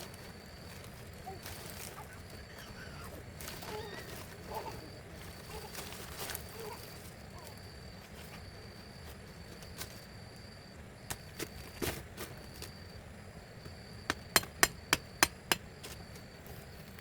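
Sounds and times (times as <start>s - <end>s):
insects trilling: 0.0s - 17.0s
faint short voice-like sounds: 1.2s - 5.8s
sharp knocks: 14.1s - 15.6s.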